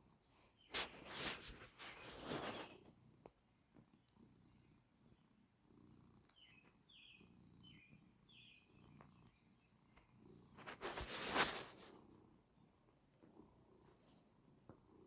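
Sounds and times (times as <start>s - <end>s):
faint bird chirps: 0.0s - 2.9s, 6.2s - 11.7s.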